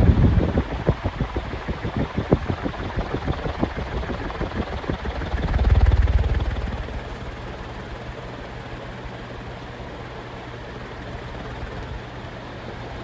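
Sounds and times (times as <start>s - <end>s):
loud low rumble: 0.0s - 8.1s
low motor hum: 0.0s - 8.2s
ceiling fan whirring: 0.0s - 13.0s.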